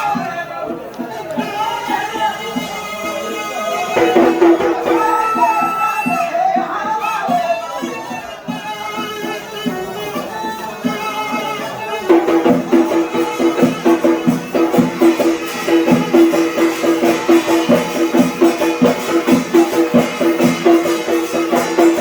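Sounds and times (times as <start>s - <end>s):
reed pipe melody: 1.1s - 22.0s
drum beat: 3.9s - 7.5s, 12.0s - 22.0s.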